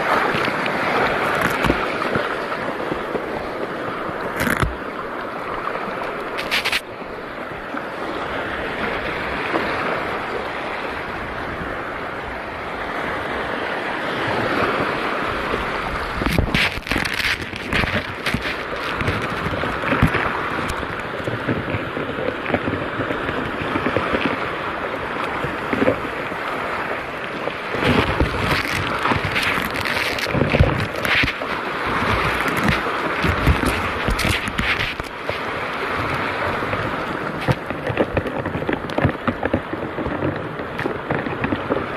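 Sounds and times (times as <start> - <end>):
sea water washing in shallows: 0.0 - 41.9
wind buffeting microphone: 7.5 - 41.9.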